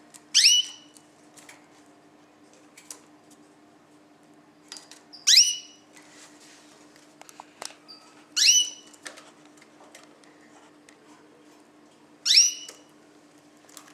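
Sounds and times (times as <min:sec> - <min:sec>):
caged birds calling: 0:00.4 - 0:00.9, 0:05.2 - 0:05.8, 0:07.9 - 0:09.0, 0:12.3 - 0:12.9.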